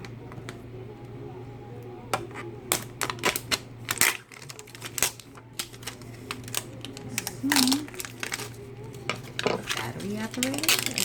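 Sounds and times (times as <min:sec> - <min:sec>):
steady low hum: 0:00.0 - 0:11.0
packaging being handled: 0:02.7 - 0:11.0.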